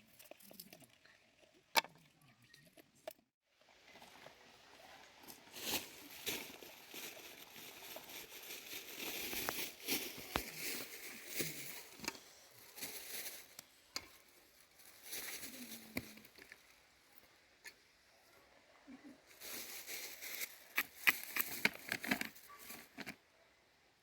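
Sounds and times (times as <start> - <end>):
rustling and crinkling: 0.0 - 16.8, 19.2 - 23.2.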